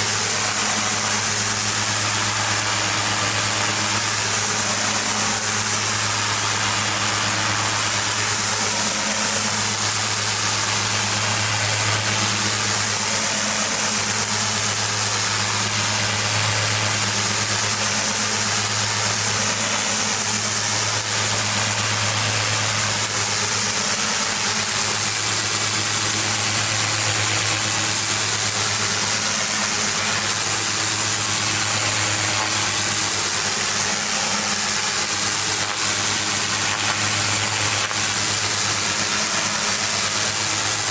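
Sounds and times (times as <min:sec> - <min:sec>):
high-pressure water spray hiss: 0:00.0 - 0:40.9
pressure washer engine running: 0:00.0 - 0:40.9.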